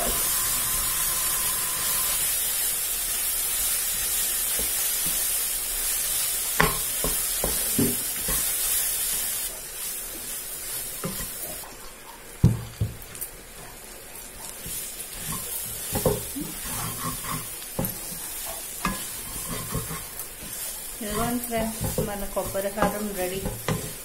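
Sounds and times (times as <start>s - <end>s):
coconut sizzling in a pan: 0.0s - 24.0s
spatula knocking and scraping pan: 6.6s - 8.5s, 14.5s - 24.0s.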